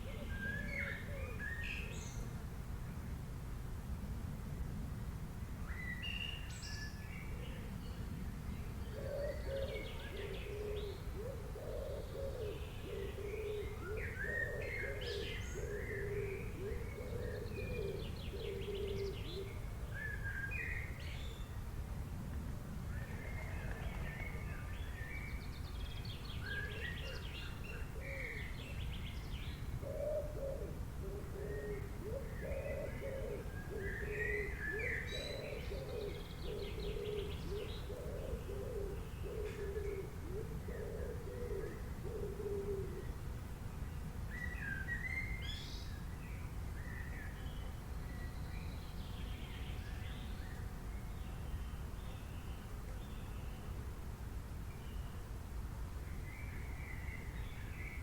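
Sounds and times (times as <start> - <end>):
low repeated bird call: 8.8 - 21.5.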